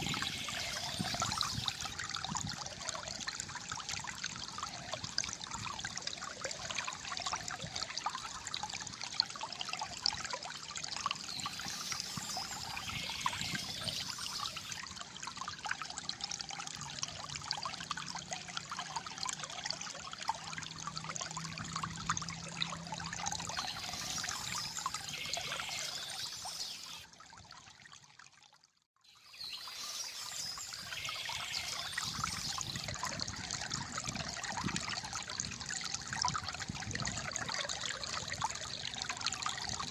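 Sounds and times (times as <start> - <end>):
water trickling and gurgling: 0.0 - 39.9.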